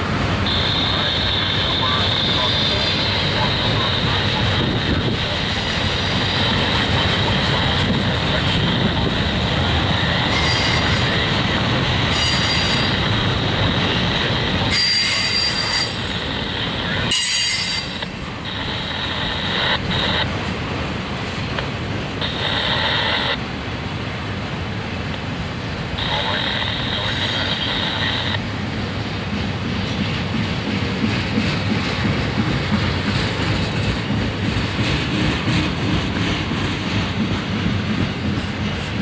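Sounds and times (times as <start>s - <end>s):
freight train wheels rumbling: 0.0s - 39.0s
high-pitched wheel squeal: 10.3s - 11.0s, 12.1s - 12.9s, 14.7s - 16.1s, 17.1s - 18.0s.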